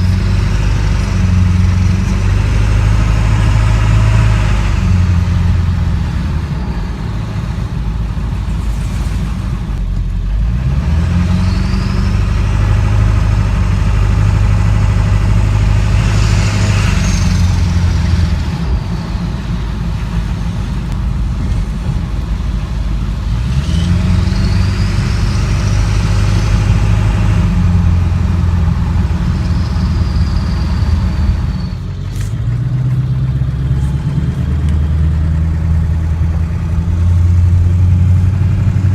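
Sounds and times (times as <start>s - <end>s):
diesel engine drone: 0.0s - 38.9s.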